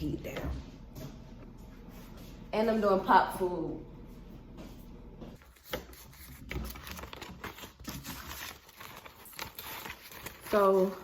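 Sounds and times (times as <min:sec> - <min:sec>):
paper money rustling: 0:05.4 - 0:11.0.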